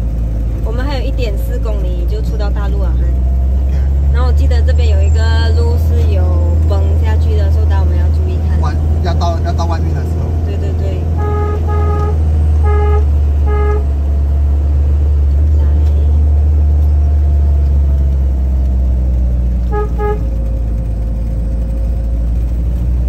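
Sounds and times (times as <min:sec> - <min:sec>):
vehicle engine droning: 0:00.0 - 0:23.0
car horn beeps: 0:11.1 - 0:14.0, 0:19.6 - 0:20.3.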